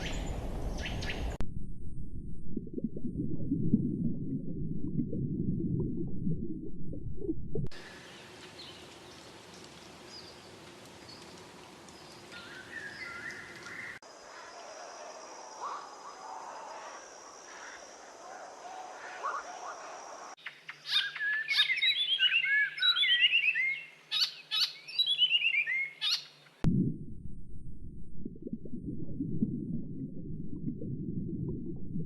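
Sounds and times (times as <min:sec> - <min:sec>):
loud low rumbling noise: 0:00.0 - 0:07.7, 0:26.7 - 0:32.0
birds chirping: 0:07.9 - 0:14.5.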